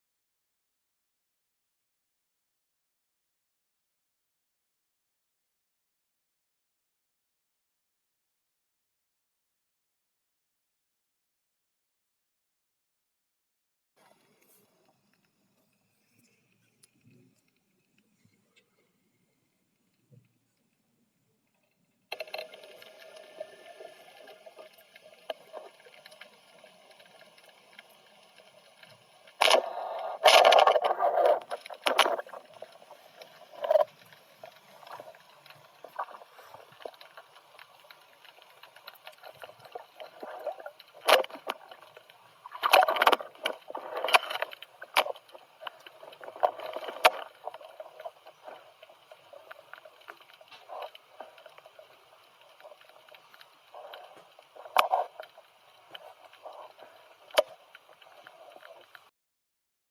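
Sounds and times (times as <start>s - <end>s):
water sloshing and bubbling: 21.4s - 59.1s
muffled underwater background: 22.1s - 59.1s.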